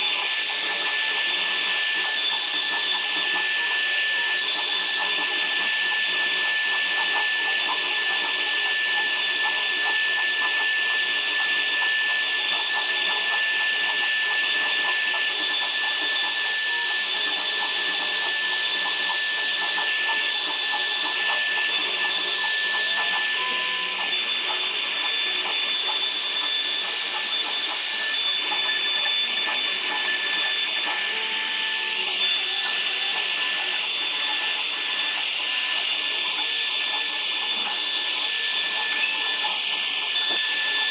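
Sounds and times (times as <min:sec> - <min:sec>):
woodworking power tool running: 0:00.0 - 0:40.9.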